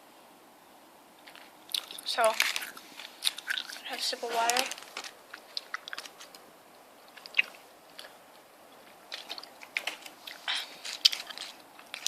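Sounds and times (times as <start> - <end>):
wet eating mouth sounds: 1.7 - 4.0, 5.2 - 12.0.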